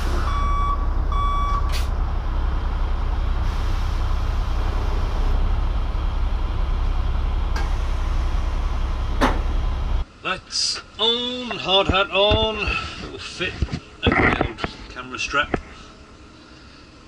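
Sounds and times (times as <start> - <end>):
diesel engine running: 0.0 - 10.2
reversing beep: 0.1 - 1.7.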